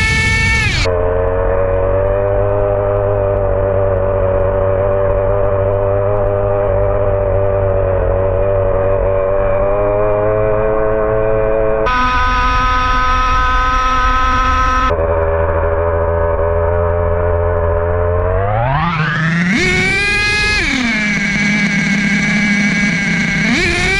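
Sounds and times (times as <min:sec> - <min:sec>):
small nitro engine buzzing: 0:00.0 - 0:04.7, 0:11.8 - 0:15.1, 0:17.8 - 0:23.9
low rumble: 0:11.8 - 0:23.5.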